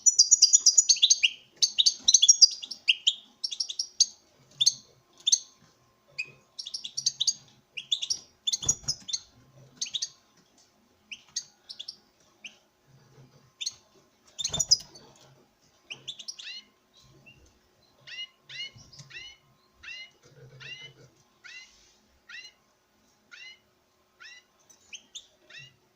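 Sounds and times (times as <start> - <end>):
goldfinch twittering: 14.4 - 14.9.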